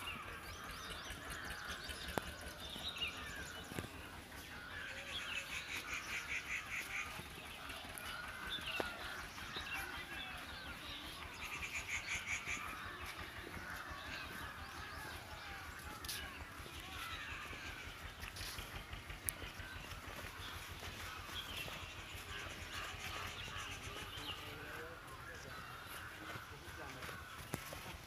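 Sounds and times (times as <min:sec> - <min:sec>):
rapid bird trill: 0:00.0 - 0:25.2
small birds chirping: 0:00.0 - 0:28.0.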